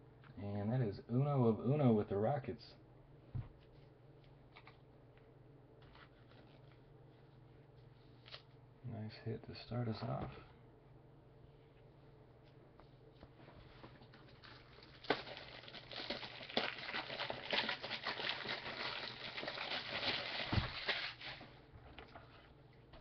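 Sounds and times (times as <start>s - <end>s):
cards and plastic sleeves rustling: 5.8s - 7.2s, 13.6s - 21.5s.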